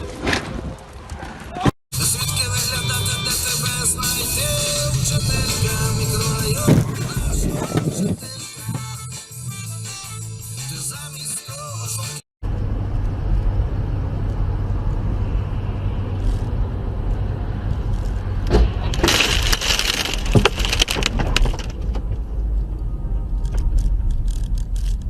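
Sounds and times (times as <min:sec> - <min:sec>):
car road rumble: 0:00.9 - 0:08.9, 0:12.4 - 0:25.0
crunching and rattling debris: 0:17.8 - 0:25.0.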